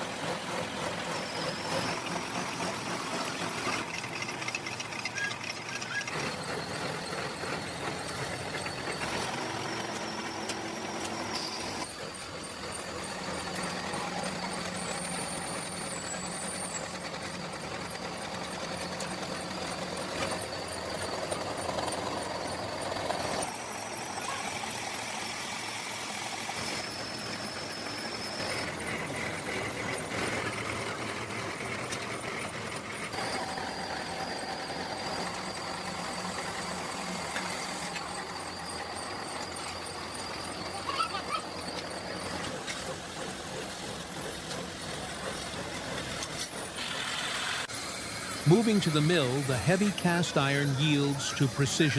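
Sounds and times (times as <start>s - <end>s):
power machinery motor running: 0.0s - 51.9s
faint high whine: 47.9s - 51.9s.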